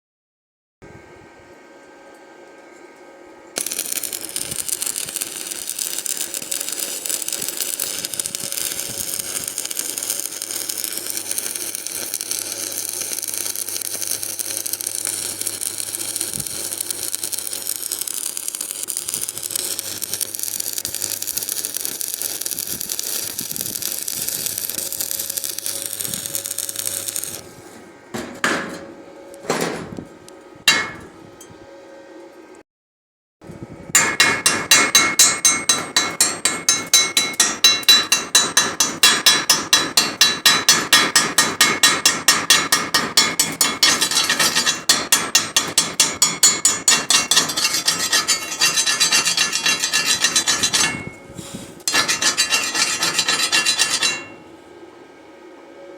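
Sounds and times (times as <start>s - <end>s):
welding arc crackling: 3.6s - 27.5s, 34.0s - 54.4s
sharp metal knocks: 34.0s - 51.2s.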